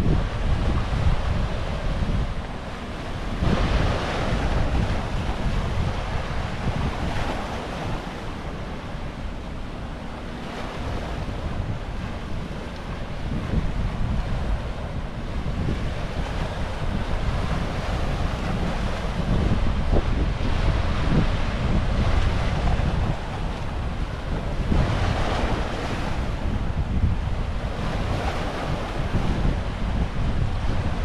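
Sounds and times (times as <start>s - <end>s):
ocean surf breaking: 0.0s - 31.0s
wind buffeting microphone: 0.0s - 31.0s.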